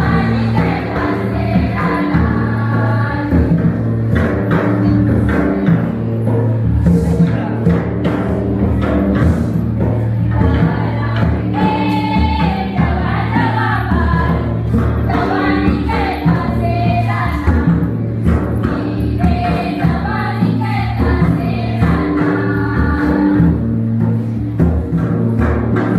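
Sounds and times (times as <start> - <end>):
group singing folk song: 0.0 - 4.0, 10.2 - 24.3
steady drum accompaniment: 0.0 - 25.9.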